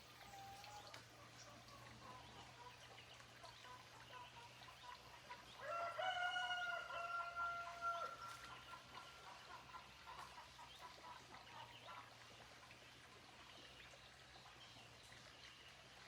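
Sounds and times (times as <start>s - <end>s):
faint clucking and chirps: 0.0s - 15.8s
rooster crowing: 5.6s - 8.2s.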